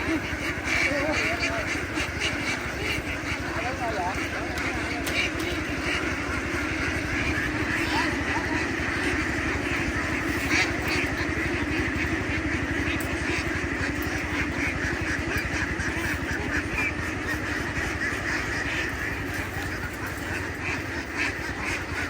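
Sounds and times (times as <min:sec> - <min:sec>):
ducks quacking: 0:00.0 - 0:22.0
engine running: 0:00.0 - 0:22.0.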